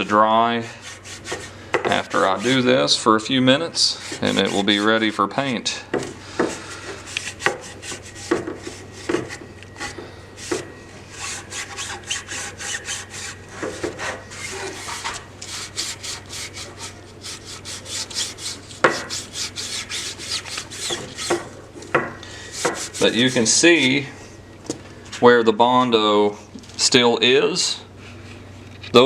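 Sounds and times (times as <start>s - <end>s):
wet cloth wiping plastic: 3.8s - 5.6s, 11.2s - 21.5s, 22.5s - 24.0s.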